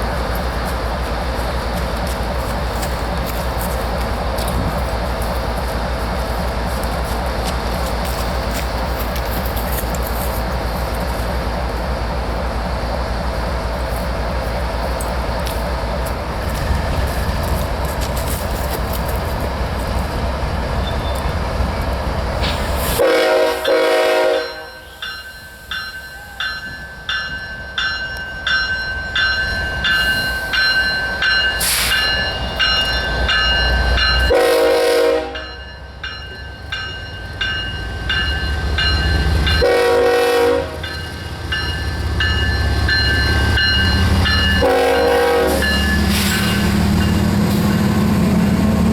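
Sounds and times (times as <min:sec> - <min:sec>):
train rumbling by: 0:00.0 - 0:48.9
locomotive horn blasts: 0:22.9 - 0:25.0, 0:34.2 - 0:35.6, 0:39.5 - 0:40.9, 0:44.5 - 0:46.2
bell ringing: 0:40.8 - 0:44.7.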